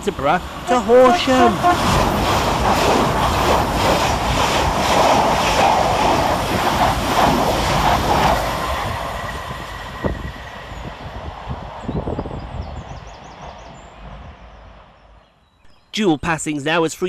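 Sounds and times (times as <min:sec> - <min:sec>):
train wheels clattering on rails: 0:01.5 - 0:11.0.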